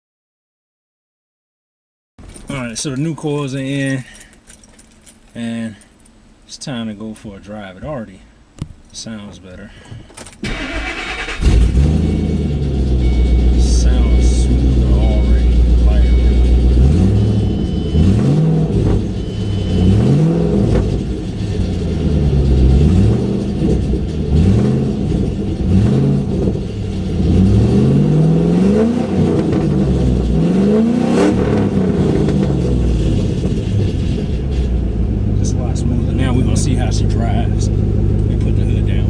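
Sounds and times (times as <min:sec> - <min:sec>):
car engine idling and revving: 0:10.4 - 0:39.0.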